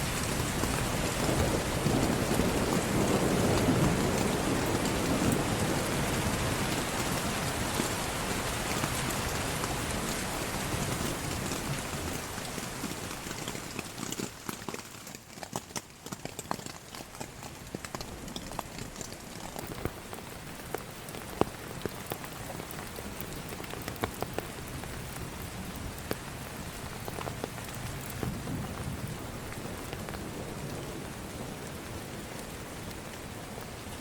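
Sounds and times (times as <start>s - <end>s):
low thunder rumble: 0.0s - 8.0s, 28.0s - 32.5s
heavy rain falling: 0.0s - 34.0s.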